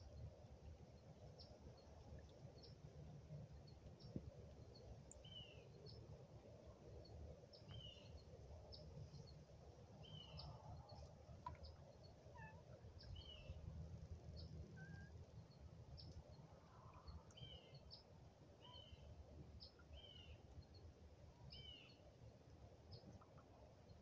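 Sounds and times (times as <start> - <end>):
low steady rumble: 0.0 - 21.4
repeated curved bird call: 14.7 - 15.2.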